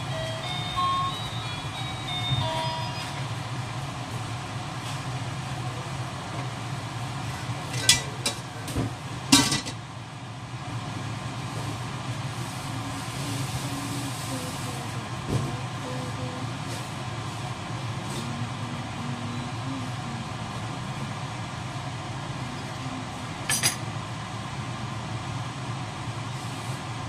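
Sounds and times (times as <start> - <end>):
steady low hum: 17.2 - 26.0.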